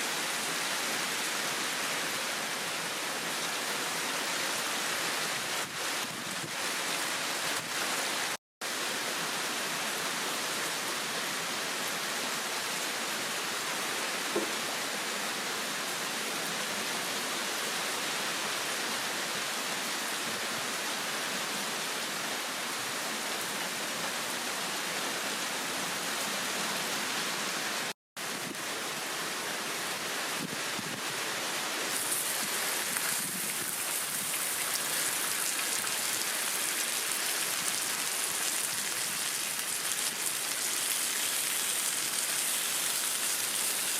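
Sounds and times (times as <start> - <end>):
heavy rain pouring: 25.9 - 43.9.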